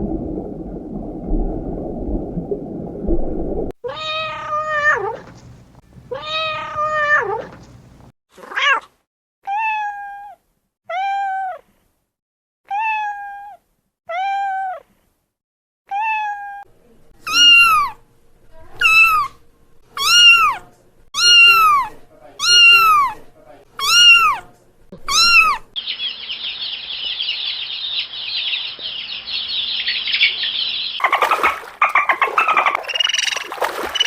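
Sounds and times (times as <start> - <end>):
cats meowing: 3.8 - 5.4, 6.1 - 7.6, 9.5 - 11.6, 15.9 - 16.6, 17.2 - 18.0, 18.8 - 19.4, 20.0 - 23.2, 23.8 - 25.8.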